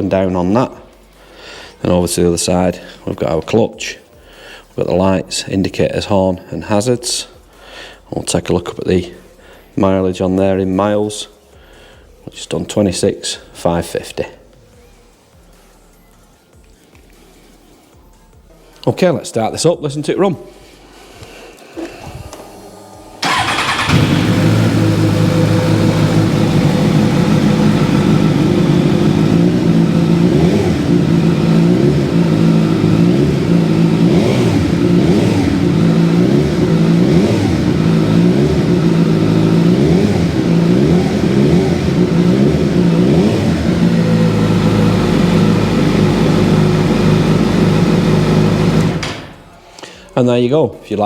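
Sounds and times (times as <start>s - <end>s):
motorcycle engine revving and idling: 23.2s - 49.4s.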